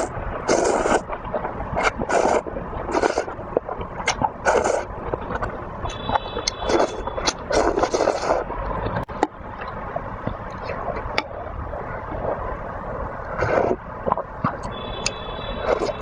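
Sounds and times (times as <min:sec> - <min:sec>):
soup sloshing and gurgling: 0:00.0 - 0:14.7.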